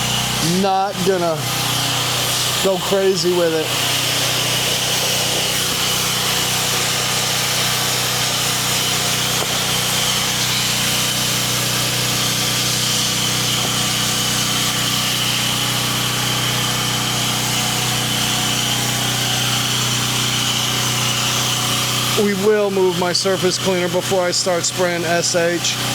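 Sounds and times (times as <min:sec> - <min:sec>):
water spray hissing: 0:00.0 - 0:16.7
pressure washer engine humming: 0:00.0 - 0:25.9.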